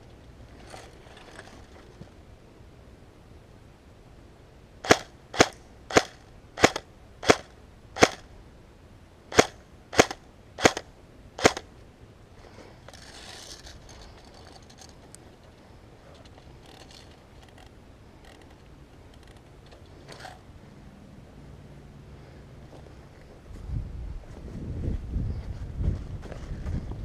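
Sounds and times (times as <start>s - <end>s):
airsoft gun shots: 4.8s - 8.2s, 9.3s - 11.6s.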